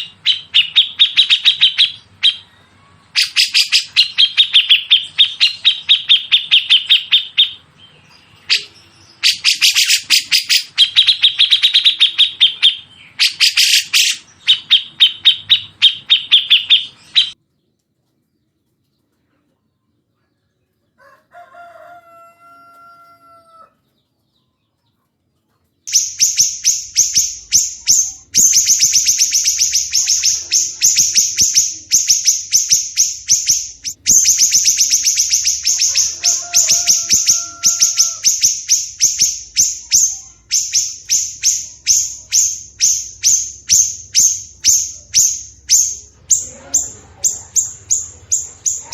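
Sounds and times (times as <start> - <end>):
songbird rapid repeated notes: 0.0 - 2.5, 3.1 - 7.6, 8.4 - 17.4, 25.9 - 48.9
high-pitched bird rattle: 25.9 - 48.9.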